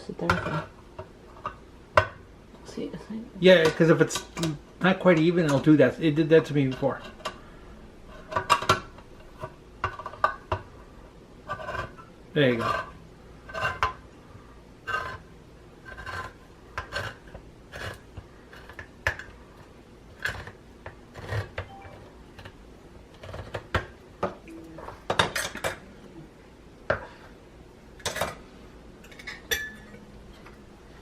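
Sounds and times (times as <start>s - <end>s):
metal utensils clinking on cookware: 29.0s - 30.6s.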